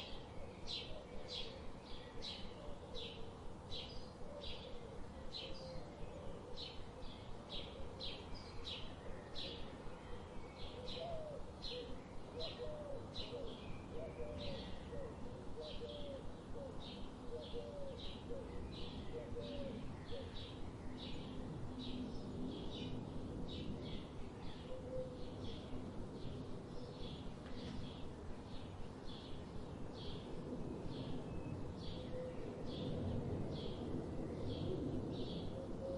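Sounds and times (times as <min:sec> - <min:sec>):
lower wavering bird calls: 0:00.0 - 0:21.3, 0:24.4 - 0:25.7.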